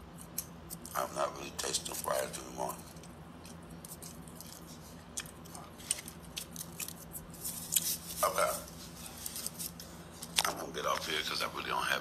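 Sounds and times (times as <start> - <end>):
person chewing food: 2.8 - 8.0.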